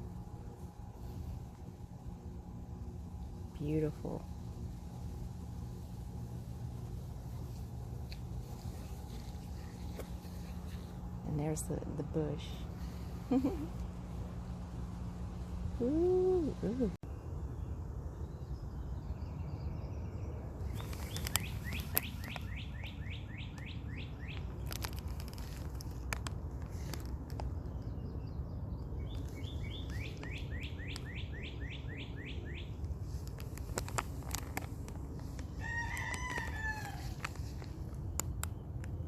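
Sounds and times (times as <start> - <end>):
steady low rumble: 0.0 - 39.0
birds chirping: 17.7 - 24.8, 26.7 - 39.0.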